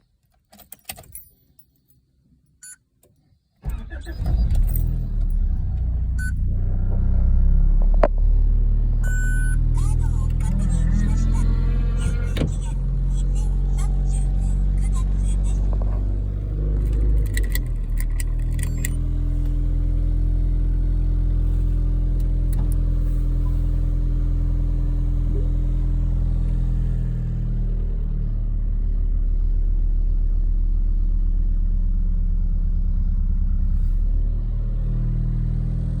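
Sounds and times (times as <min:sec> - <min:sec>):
car engine idling: 0:03.6 - 0:36.0.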